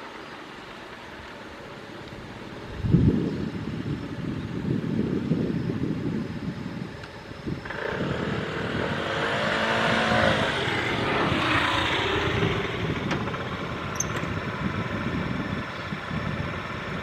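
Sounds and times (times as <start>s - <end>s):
motor vehicle passing: 7.6s - 15.6s.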